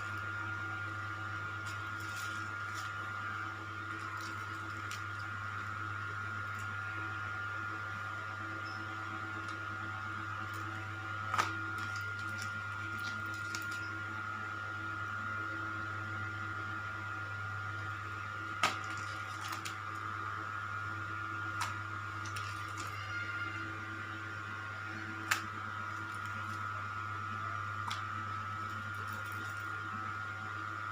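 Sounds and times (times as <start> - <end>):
electrical hum: 0.0 - 30.9
constant high-pitched tone: 21.0 - 30.4.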